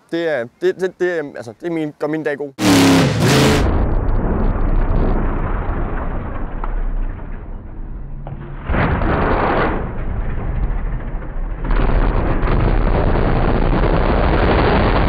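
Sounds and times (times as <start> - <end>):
truck engine revving hard: 2.6 - 3.8.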